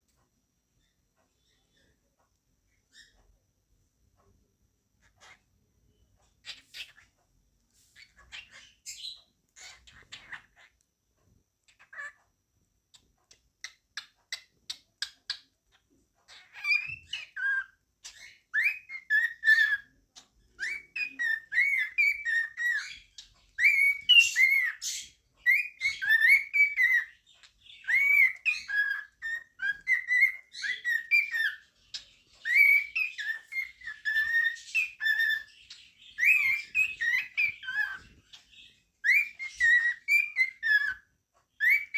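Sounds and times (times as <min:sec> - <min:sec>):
cockatiel clicks and chirps: 0:06.2 - 0:07.3, 0:12.9 - 0:41.9
cockatiel whistling: 0:16.3 - 0:41.9.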